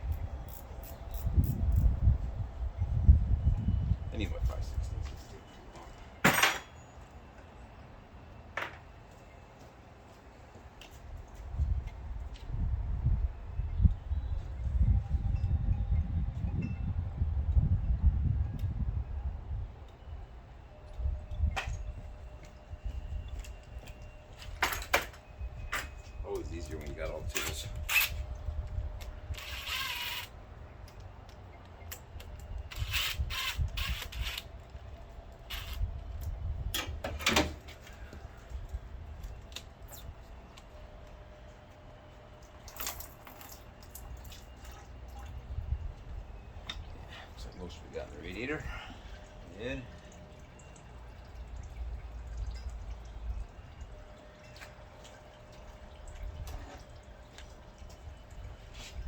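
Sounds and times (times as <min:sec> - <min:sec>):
coolant dripping into a pan: 0:49.4 - 0:58.6.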